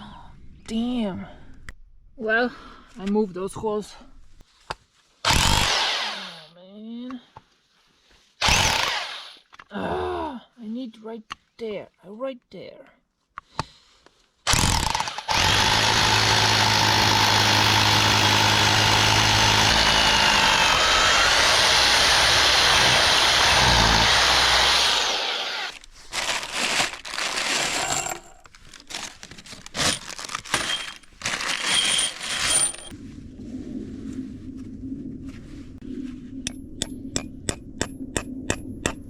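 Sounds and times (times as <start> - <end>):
electric drill boring into concrete: 5.3 - 6.4, 8.4 - 9.4, 14.5 - 25.8.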